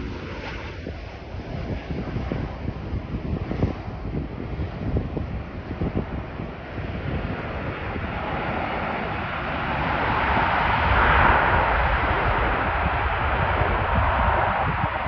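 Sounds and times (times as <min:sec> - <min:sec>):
faint engine whine: 0:00.0 - 0:15.0
jet engines running: 0:00.0 - 0:15.0
wind buffeting microphone: 0:00.0 - 0:15.0.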